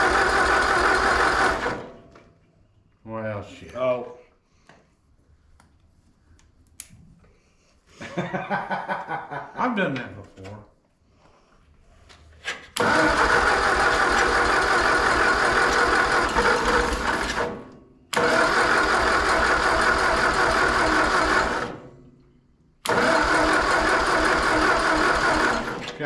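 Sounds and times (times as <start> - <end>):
tractor engine cranking: 0.0 - 2.3, 12.4 - 21.9, 22.8 - 26.0.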